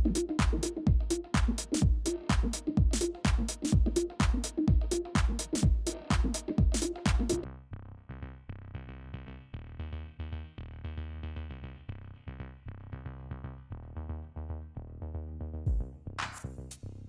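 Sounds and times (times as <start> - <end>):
drum-machine beat: 0.0 - 7.4, 15.7 - 16.8.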